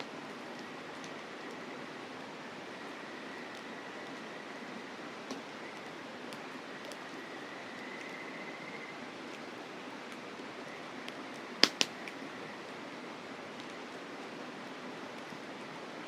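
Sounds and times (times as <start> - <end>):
campfire crackling: 0.0 - 16.0
insect trill: 2.4 - 9.2
loud fire pops: 11.6 - 12.0.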